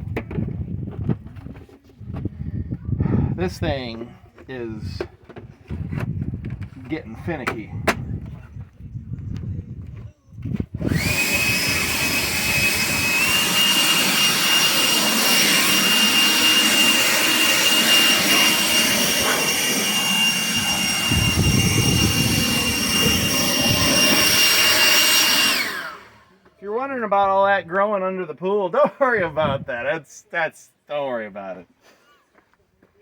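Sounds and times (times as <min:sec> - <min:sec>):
leaf blower running: 0:10.8 - 0:26.5.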